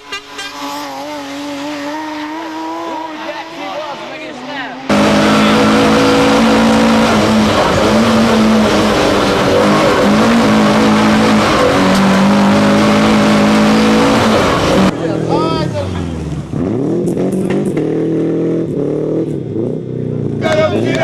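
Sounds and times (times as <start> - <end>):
race car engine revving: 0.0 - 21.0.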